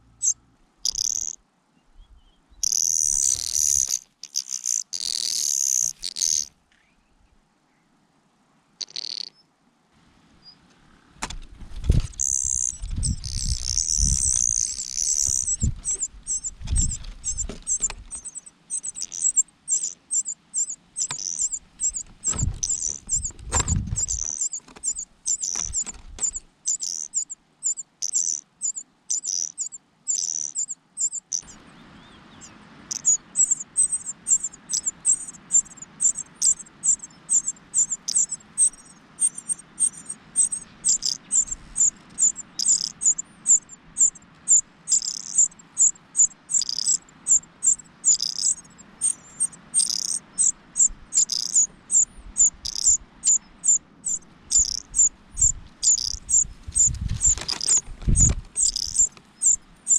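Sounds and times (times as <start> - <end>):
nestlings cheeping: 0.2 - 1.4, 2.6 - 6.5, 8.8 - 9.4, 11.8 - 59.9
thumps and rustling in nest: 11.2 - 12.2, 15.2 - 18.2, 22.0 - 24.9, 25.5 - 26.4, 56.7 - 59.2.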